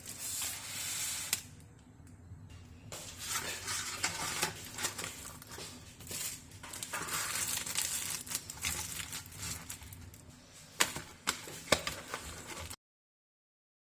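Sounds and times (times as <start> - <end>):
paper wrapper crinkling: 3.2 - 12.8.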